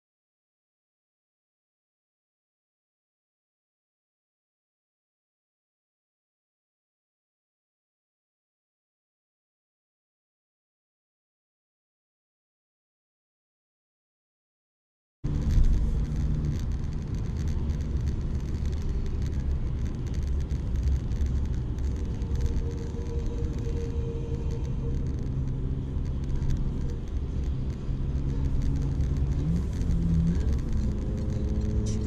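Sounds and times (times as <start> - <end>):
road rumble: 15.2 - 32.0
car engine hum: 15.3 - 32.0.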